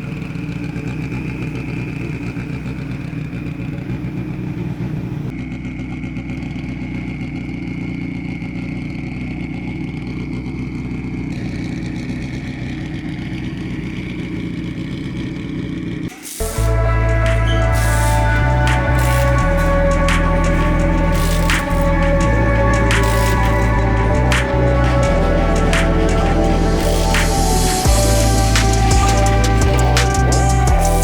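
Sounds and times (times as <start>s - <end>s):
engine idling: 0.0s - 31.0s
high whine: 16.1s - 31.0s.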